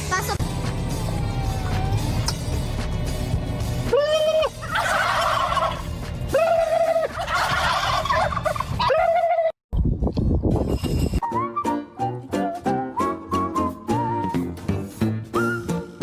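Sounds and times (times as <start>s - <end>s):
animal held calls: 4.2s - 9.3s.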